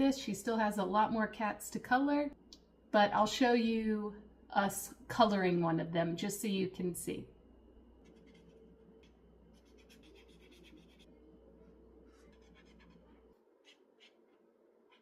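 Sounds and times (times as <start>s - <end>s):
coloring tool scratching on paper: 8.0s - 11.1s, 12.1s - 15.0s.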